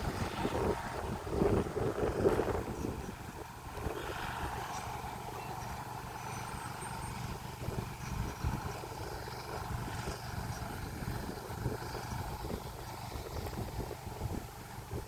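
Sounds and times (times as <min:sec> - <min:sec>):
locomotive engine rumbling: 0:00.0 - 0:15.0.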